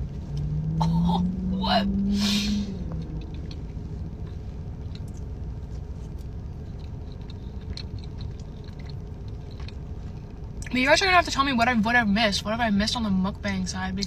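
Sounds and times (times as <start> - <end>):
low car interior hum: 0.0 - 14.0
quiet chewing: 2.9 - 10.7.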